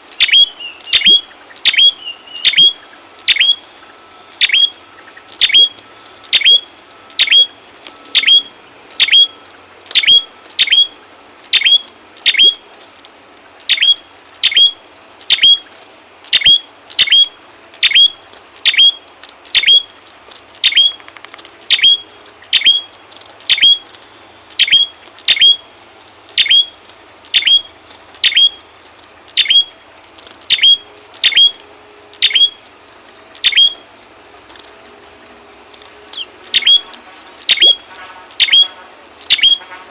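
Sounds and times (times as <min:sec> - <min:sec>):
bird call with sharp high notes: 0:00.2 - 0:03.6, 0:04.4 - 0:04.8, 0:06.4 - 0:07.5, 0:11.6 - 0:12.6, 0:22.6 - 0:22.9, 0:27.3 - 0:28.6, 0:29.4 - 0:29.7, 0:32.2 - 0:32.6, 0:36.2 - 0:39.8.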